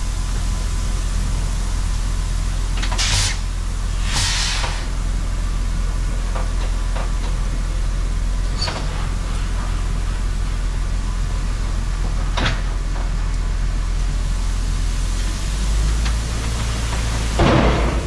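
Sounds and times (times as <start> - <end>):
farm machinery engine rumble: 0.0 - 18.0
short hisses: 3.0 - 3.4, 4.0 - 4.9.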